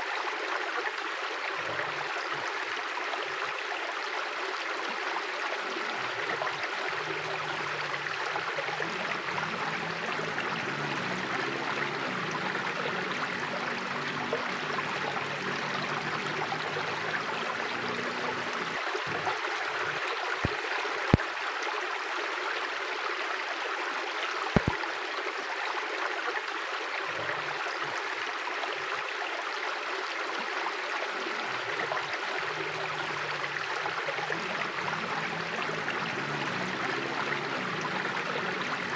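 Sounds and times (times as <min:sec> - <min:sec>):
river rushing over stones: 0:05.6 - 0:21.1, 0:31.1 - 0:38.9
sharp clicks: 0:24.6 - 0:24.8.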